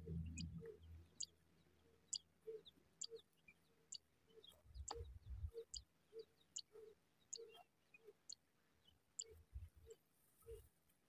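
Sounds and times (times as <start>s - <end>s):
low rumbles: 0.0s - 1.2s
small bird chirping: 0.0s - 10.7s.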